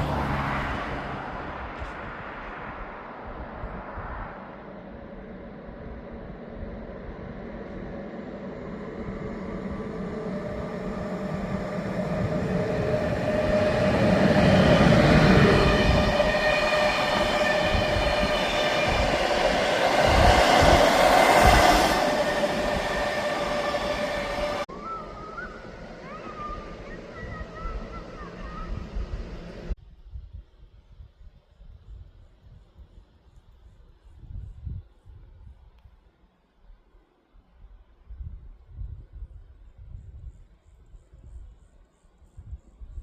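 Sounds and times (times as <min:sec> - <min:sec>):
electric train passing: 0:00.0 - 0:29.8.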